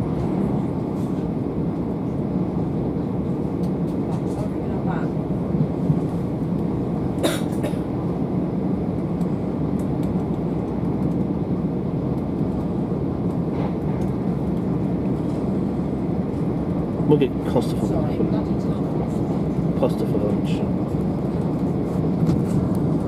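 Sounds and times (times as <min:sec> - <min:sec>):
train wheels rumbling on rails: 0:09.0 - 0:23.0.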